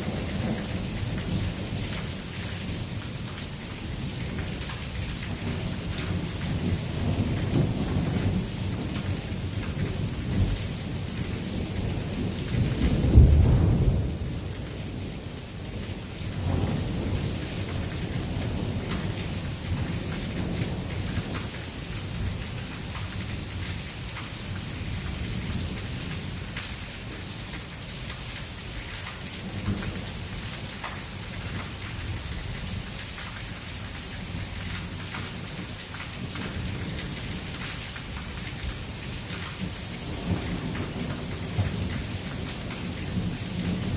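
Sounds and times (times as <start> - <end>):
heavy rain pouring: 0.0 - 43.9
thunder rumbling: 5.8 - 21.1.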